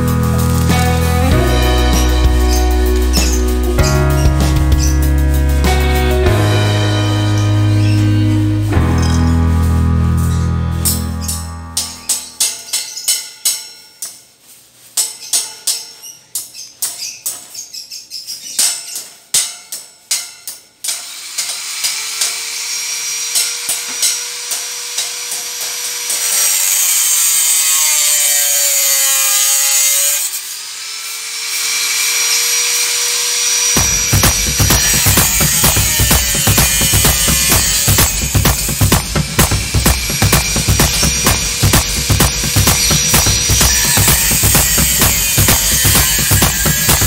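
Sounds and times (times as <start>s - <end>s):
angle grinder grinding metal: 0.0s - 13.0s, 20.9s - 47.0s
hammer strikes on steel: 10.9s - 14.2s, 18.6s - 22.4s, 23.3s - 26.3s, 33.8s - 47.0s.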